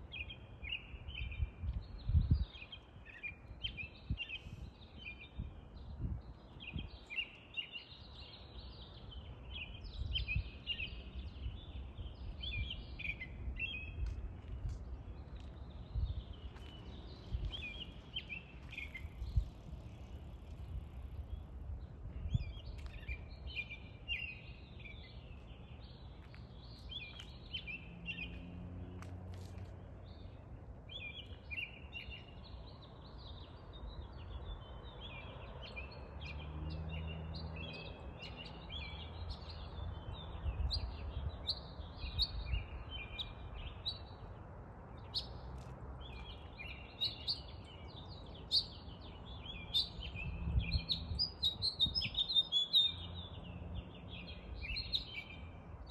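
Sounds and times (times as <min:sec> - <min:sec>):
songbirds chirping: 0:00.0 - 0:55.9.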